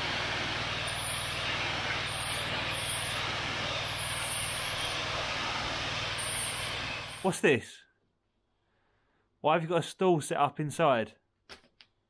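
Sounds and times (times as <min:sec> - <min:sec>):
pressure washer engine drone: 0:00.0 - 0:07.3
water jet hissing: 0:00.0 - 0:07.3.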